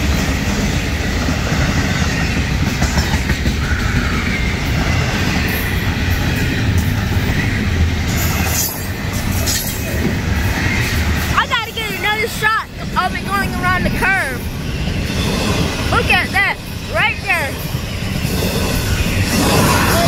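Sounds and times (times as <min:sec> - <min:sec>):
steel wheels rumbling on rails: 0:00.0 - 0:20.0.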